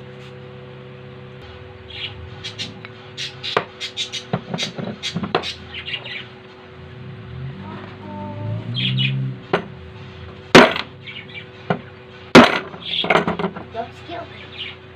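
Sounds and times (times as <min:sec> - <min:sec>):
bird squawking: 0:01.8 - 0:06.4, 0:08.1 - 0:09.2, 0:11.0 - 0:12.0, 0:12.8 - 0:13.2, 0:13.8 - 0:14.9.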